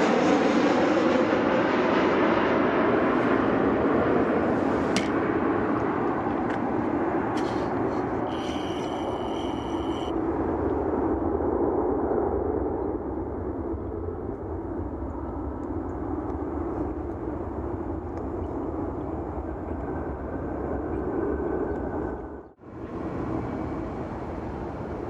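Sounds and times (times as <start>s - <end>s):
jet engines rumbling: 0.0s - 25.0s
faint high whine: 8.2s - 10.2s.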